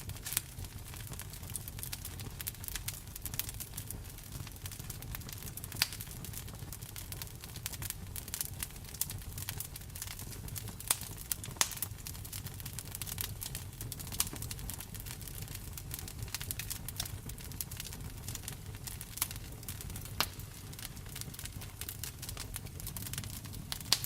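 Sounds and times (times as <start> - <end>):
louder fire pops: 0.0 - 24.0
wood fire crackling: 0.0 - 24.0.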